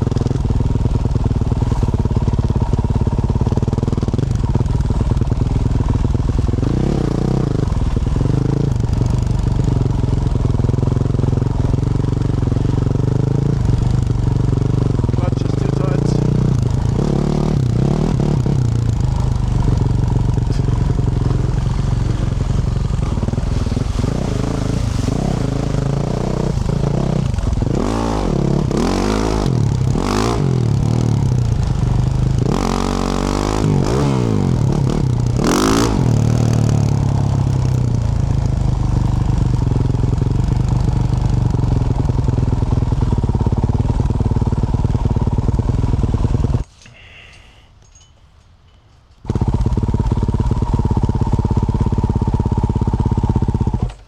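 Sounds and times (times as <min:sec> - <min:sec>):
motorcycle engine revving: 0:00.0 - 0:46.7, 0:49.2 - 0:54.0.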